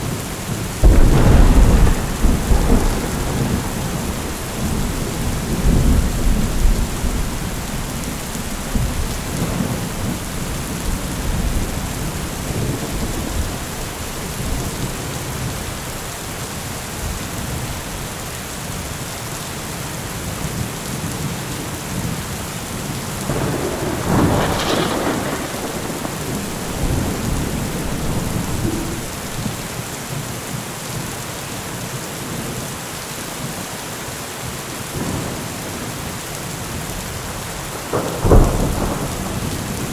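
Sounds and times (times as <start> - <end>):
heavy rain falling: 0.0 - 39.9
thunder rumbling: 0.7 - 16.2, 23.2 - 29.9, 37.7 - 39.9.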